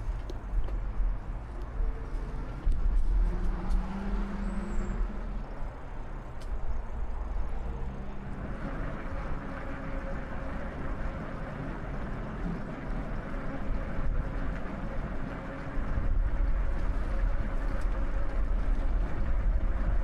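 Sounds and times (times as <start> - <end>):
highway traffic rumble: 0.0 - 20.0.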